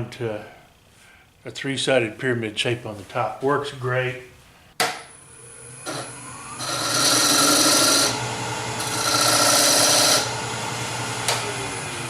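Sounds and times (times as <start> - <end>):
wood lathe humming: 5.2 - 12.0
tool scraping wood on lathe: 5.9 - 10.4.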